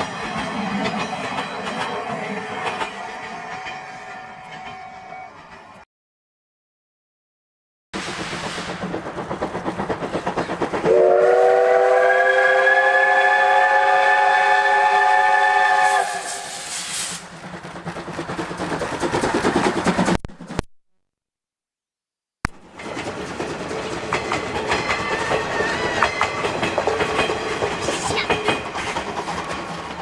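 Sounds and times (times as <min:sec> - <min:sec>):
steam locomotive exhaust beats: 0:08.0 - 0:20.7
steam whistle chord: 0:10.9 - 0:16.8.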